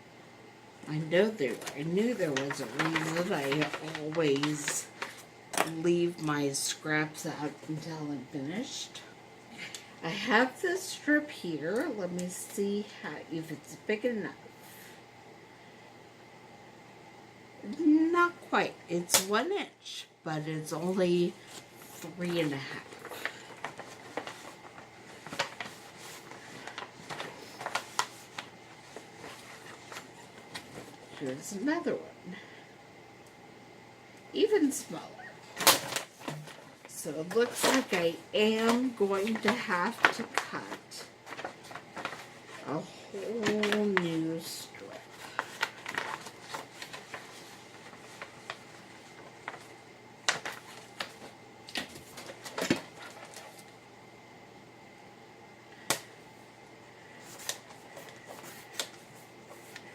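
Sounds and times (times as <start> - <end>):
paper rustling and sliding: 1.4 - 5.3, 21.3 - 31.3, 37.3 - 44.3, 45.0 - 53.7, 57.2 - 59.9.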